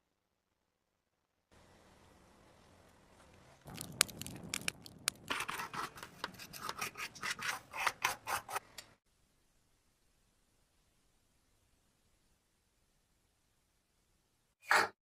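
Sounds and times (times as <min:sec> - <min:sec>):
scraping on small metal part: 0:05.3 - 0:08.9.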